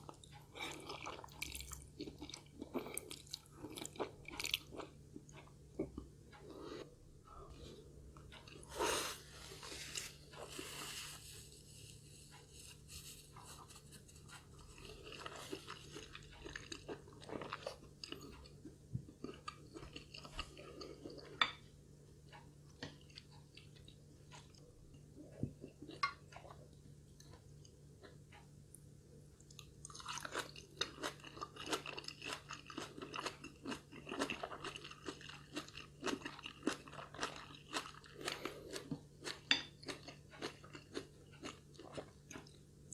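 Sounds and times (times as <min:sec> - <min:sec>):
person chewing and biting: 0:14.6 - 0:18.5, 0:29.8 - 0:42.6.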